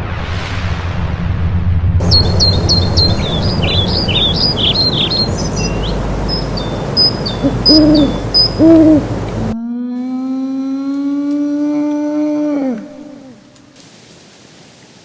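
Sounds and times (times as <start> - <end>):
birds chirping and whistling: 2.0 - 9.6
short low bird calls: 2.0 - 9.6
steady outdoor hiss: 2.0 - 9.6, 13.8 - 15.0.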